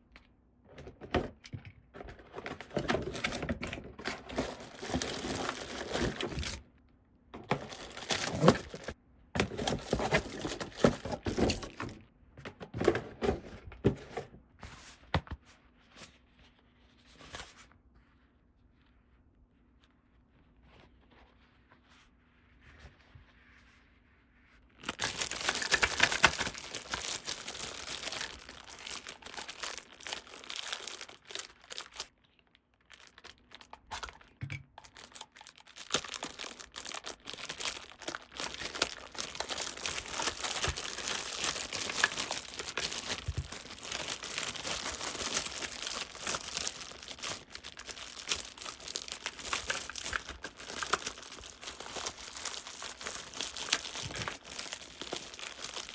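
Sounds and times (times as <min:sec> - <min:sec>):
packaging crinkling and tearing: 0:02.3 - 0:06.7, 0:07.4 - 0:12.0, 0:24.6 - 0:55.9.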